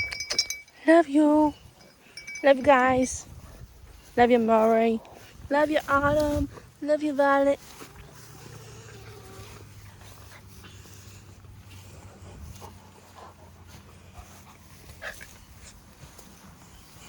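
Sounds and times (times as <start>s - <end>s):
dog panting: 9.5s - 17.0s.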